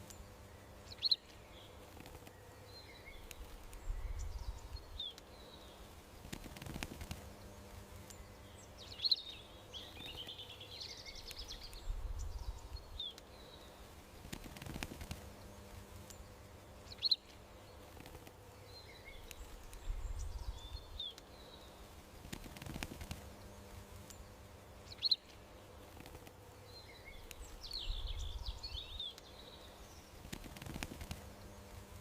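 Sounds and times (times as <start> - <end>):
songbirds chirping: 0.0 - 32.0
soft low rumble: 3.3 - 5.0, 19.4 - 21.0, 27.4 - 29.0.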